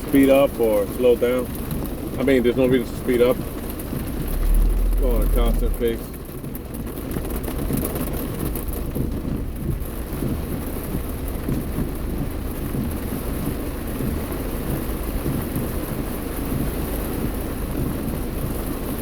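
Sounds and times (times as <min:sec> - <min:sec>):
heavy rain on car roof: 0:00.0 - 0:19.0
low rumble: 0:02.8 - 0:07.2.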